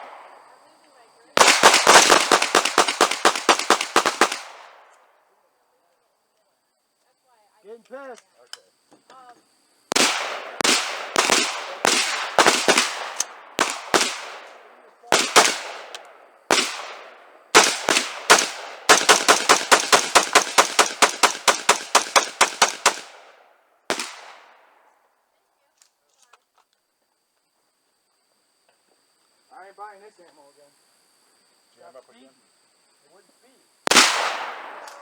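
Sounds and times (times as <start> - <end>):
gunshots with echo: 1.4 - 4.8, 9.9 - 23.2, 23.9 - 24.5, 33.9 - 35.0.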